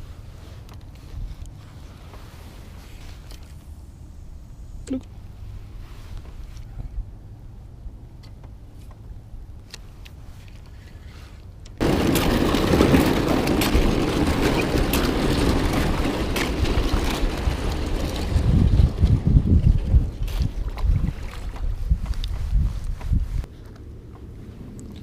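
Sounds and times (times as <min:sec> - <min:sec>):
wind buffeting the microphone: 0:09.2 - 0:23.6.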